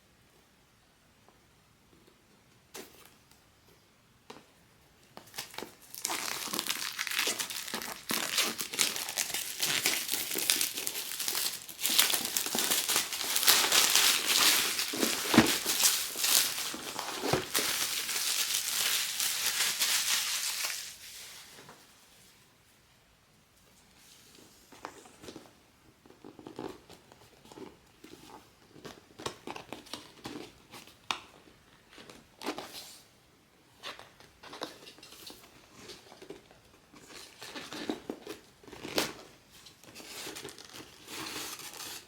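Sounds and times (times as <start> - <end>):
plastic wrap crinkling and tearing: 5.2 - 21.6, 33.9 - 42.0.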